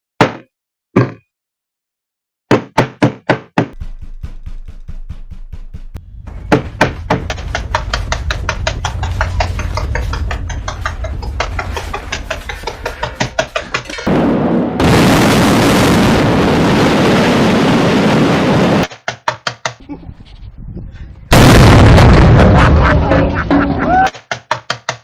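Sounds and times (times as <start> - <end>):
low bass drone: 3.8 - 13.0
knocking on a door: 6.5 - 8.7.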